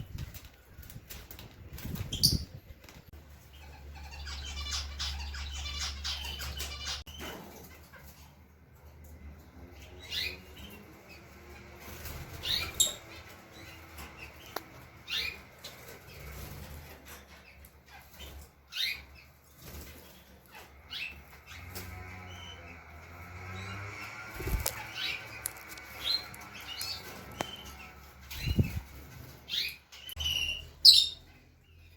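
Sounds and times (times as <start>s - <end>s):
birds fluttering wings: 0.0s - 3.4s, 11.3s - 17.4s, 19.3s - 30.2s.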